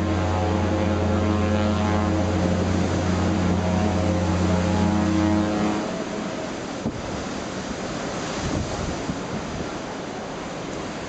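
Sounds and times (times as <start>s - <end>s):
low engine drone: 0.0s - 6.8s
waves: 0.0s - 11.0s
wind: 0.0s - 11.0s.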